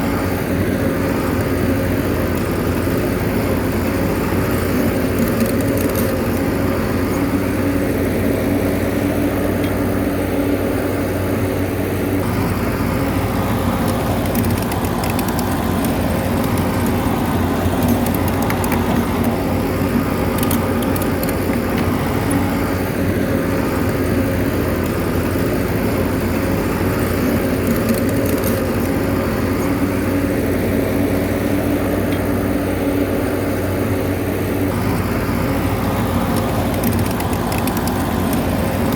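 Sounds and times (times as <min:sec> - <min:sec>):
bulldozer diesel engine running: 0:00.0 - 0:38.9
faint clicks: 0:36.2 - 0:38.9.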